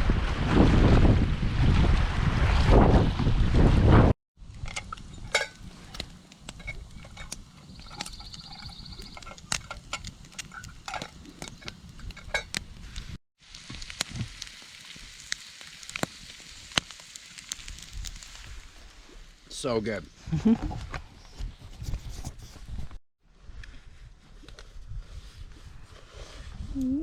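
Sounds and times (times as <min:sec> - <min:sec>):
metal utensils scraping dishes: 0:05.3 - 0:05.6
faint frying hiss: 0:05.3 - 0:19.9.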